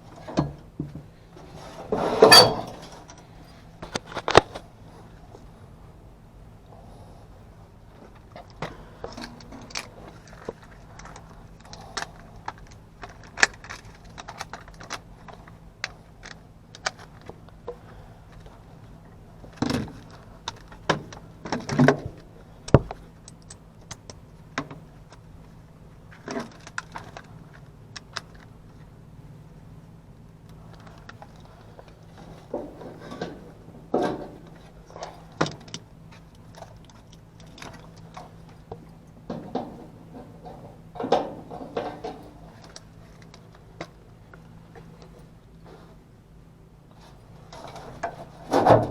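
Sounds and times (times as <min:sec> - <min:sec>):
metal tools clinking: 0:02.1 - 0:03.2.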